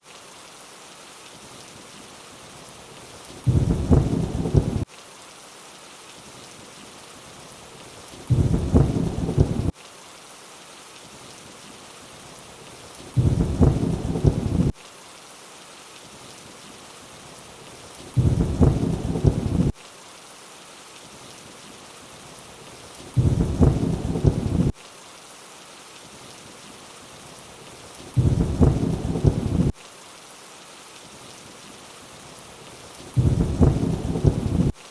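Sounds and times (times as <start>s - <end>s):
rainfall hiss: 0.0s - 34.9s
low thunder rumble: 3.5s - 4.8s, 8.3s - 9.7s, 13.2s - 14.7s, 18.2s - 19.7s, 23.2s - 24.7s, 28.2s - 29.7s, 33.2s - 34.8s.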